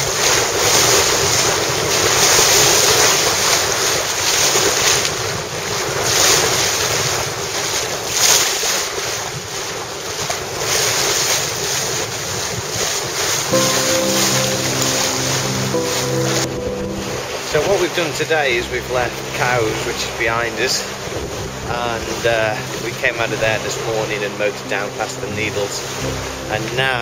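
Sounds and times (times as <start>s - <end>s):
wind buffeting microphone: 0.0s - 13.6s
sea water rushing along hull: 0.0s - 27.0s.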